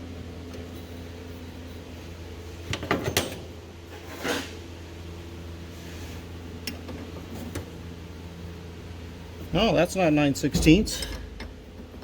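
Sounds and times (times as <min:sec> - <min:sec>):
steady low hum: 0:00.0 - 0:12.0
tool scraping metal: 0:03.9 - 0:04.6.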